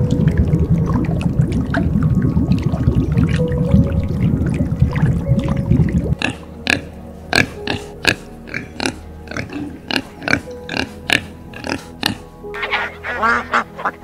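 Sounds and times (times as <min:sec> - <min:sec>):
underwater rushing water: 0:00.0 - 0:06.6
pigs grunting: 0:06.1 - 0:14.0.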